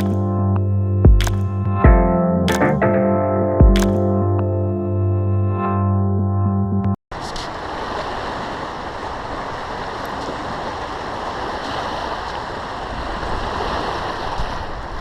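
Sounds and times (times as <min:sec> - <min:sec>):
waves washing onto beach: 0:07.1 - 0:15.0.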